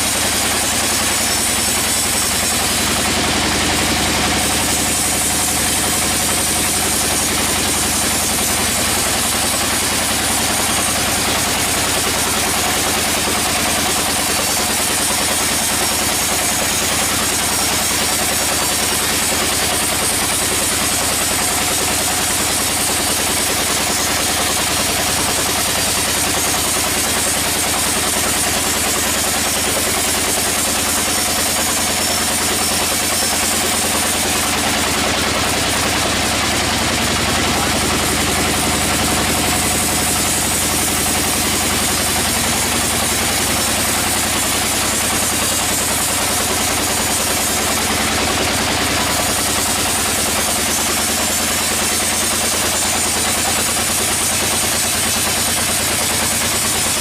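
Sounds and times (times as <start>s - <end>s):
sawmill engine drone: 0.0s - 57.0s.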